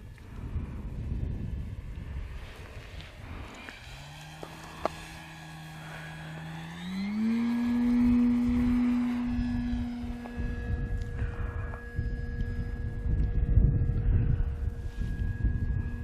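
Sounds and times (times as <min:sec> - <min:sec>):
model plane motor droning: 0:00.0 - 0:16.0
wind buffeting microphone: 0:00.0 - 0:16.0.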